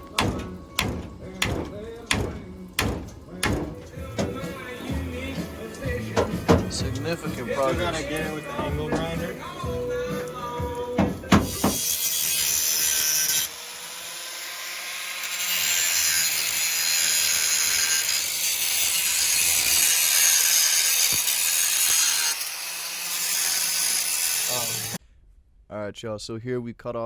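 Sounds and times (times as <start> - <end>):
angle grinder cutting steel: 11.2 - 25.0.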